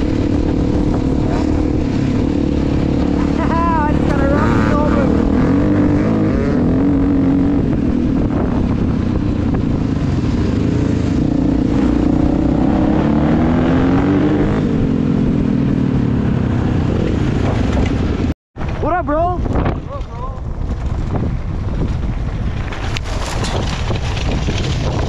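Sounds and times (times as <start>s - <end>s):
dirt bike engine revving: 0.0s - 17.3s
wind rumble on microphone: 0.0s - 25.0s.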